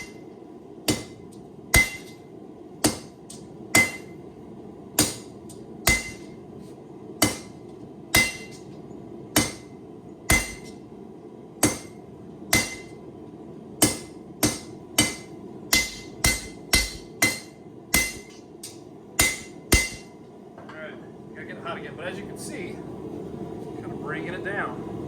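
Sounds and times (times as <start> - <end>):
hammer striking steel on anvil: 0.0 - 0.2, 0.9 - 2.2, 2.8 - 4.2, 5.0 - 6.4, 7.2 - 8.7, 9.4 - 9.7, 10.3 - 10.8, 11.6 - 13.0, 13.8 - 20.2.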